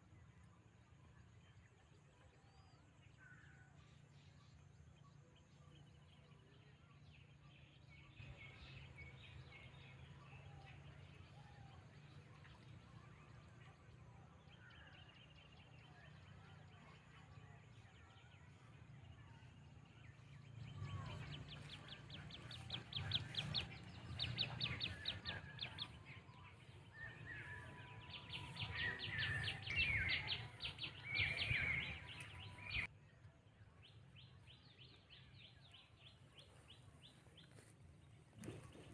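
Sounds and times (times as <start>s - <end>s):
birds chirping and trilling: 20.6s - 32.9s.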